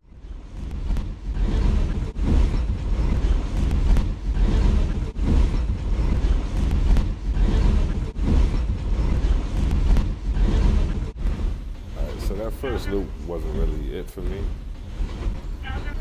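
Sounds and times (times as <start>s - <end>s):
looped train noise: 0.0s - 16.0s.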